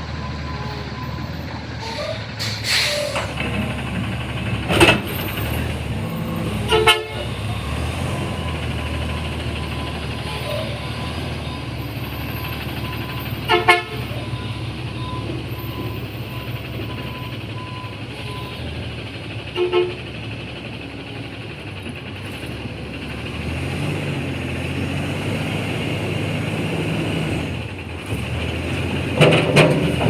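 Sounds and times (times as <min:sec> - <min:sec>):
garbage truck engine running: 0:00.0 - 0:30.0
truck horn short toots: 0:06.6 - 0:07.4, 0:13.4 - 0:14.2, 0:19.6 - 0:20.0.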